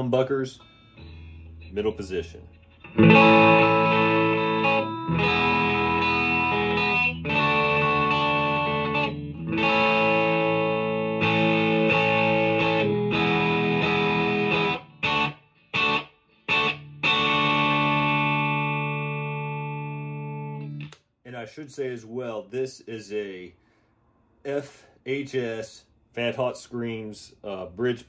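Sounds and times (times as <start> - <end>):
overdriven electric guitar chords: 0.6 - 21.0.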